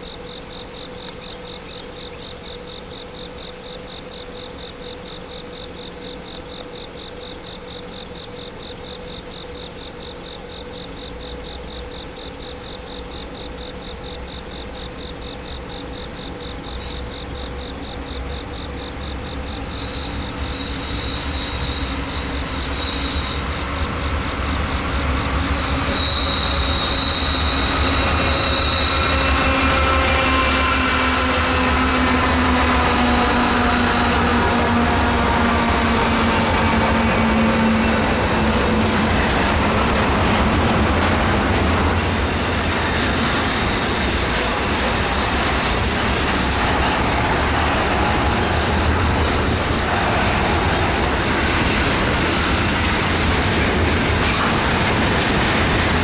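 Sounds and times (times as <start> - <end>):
crickets trilling: 0.0 - 56.0
train engine and rail rumble: 0.0 - 56.0
high metallic wheel squeal: 19.5 - 23.7, 25.3 - 39.3, 41.9 - 49.7.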